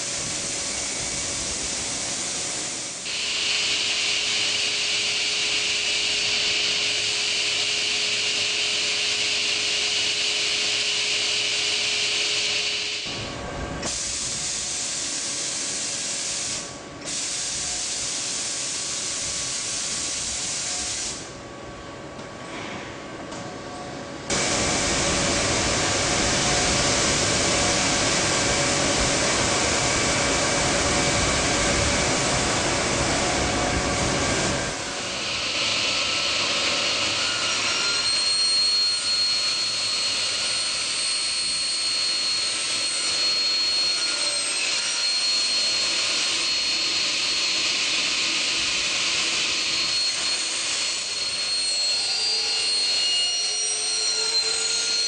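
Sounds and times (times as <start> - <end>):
high machine whine: 0.0 - 22.6, 23.3 - 55.0
cutting saw machine running: 2.7 - 13.2, 24.3 - 55.0.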